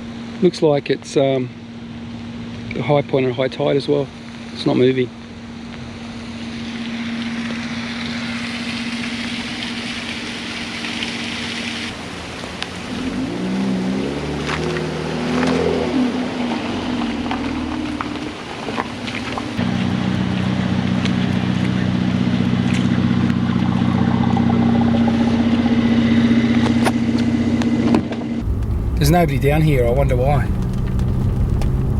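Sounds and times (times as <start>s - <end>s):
car engine running: 16.9s - 31.9s.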